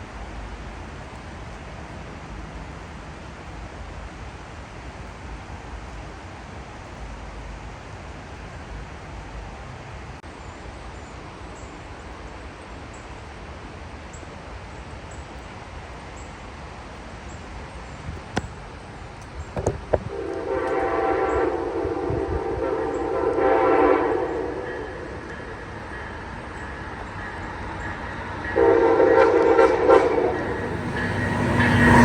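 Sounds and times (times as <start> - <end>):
locomotive air horn: 20.1 - 25.2, 28.5 - 32.0.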